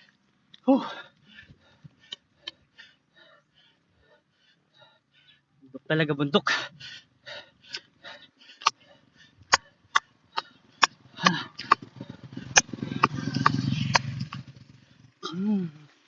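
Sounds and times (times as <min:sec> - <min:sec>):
person breathing hard: 0:00.0 - 0:05.6, 0:06.5 - 0:13.6
low rumble: 0:09.0 - 0:15.2.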